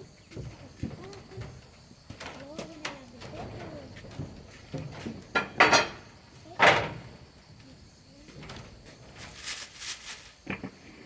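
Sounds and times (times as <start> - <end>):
soft scraping: 9.1 - 10.4.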